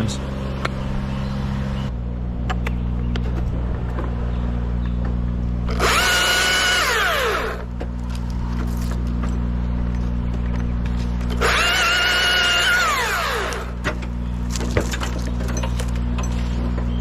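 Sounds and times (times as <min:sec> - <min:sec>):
low engine drone: 0:00.0 - 0:17.0
chainsaw whining: 0:05.7 - 0:07.7, 0:11.4 - 0:13.8.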